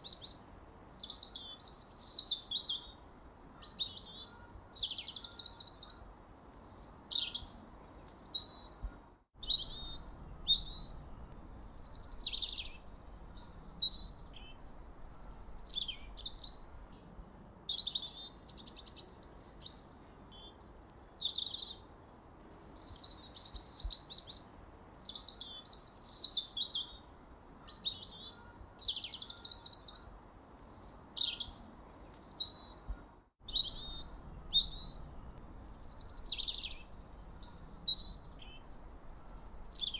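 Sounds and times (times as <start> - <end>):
faint background hiss: 0.0 - 39.9
songbirds chirping and singing: 9.4 - 17.1, 33.5 - 39.9.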